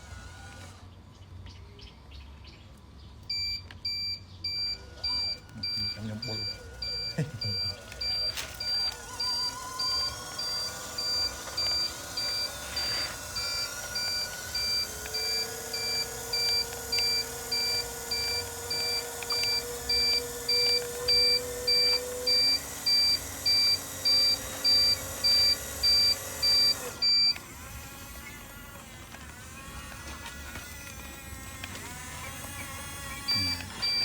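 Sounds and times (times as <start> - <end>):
faint electric motor whine: 0.0 - 1.5, 3.2 - 34.0
electronic reversing alarm beeping: 3.3 - 27.4, 32.2 - 34.0.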